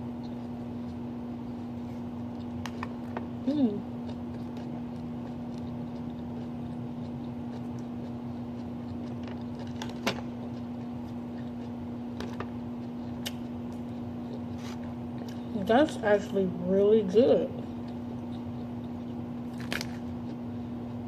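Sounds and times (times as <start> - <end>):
steady low hum: 0.0 - 21.0
person chewing salad: 0.1 - 15.5, 17.6 - 21.0
crisp clicks and crunches: 19.5 - 20.1.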